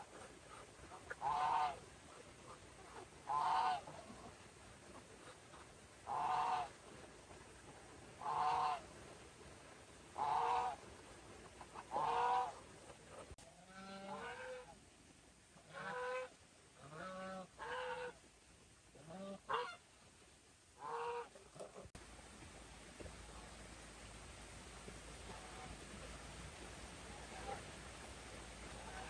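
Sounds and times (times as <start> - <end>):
geese honking: 1.1 - 4.4, 8.2 - 8.8, 10.2 - 10.8, 11.8 - 14.8.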